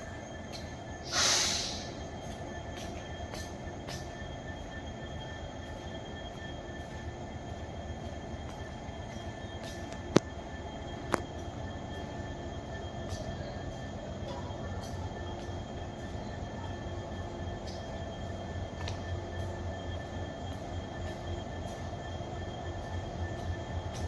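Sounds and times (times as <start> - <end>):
rail clicks: 0.0 - 24.0
train rumbling on rails: 0.0 - 24.0
loud hiss: 1.0 - 2.0.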